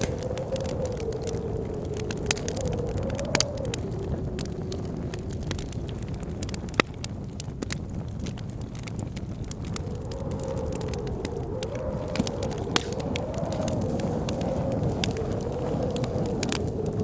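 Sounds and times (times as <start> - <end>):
blizzard wind howling: 0.0 - 17.0
wood fire crackling and popping: 0.0 - 17.0.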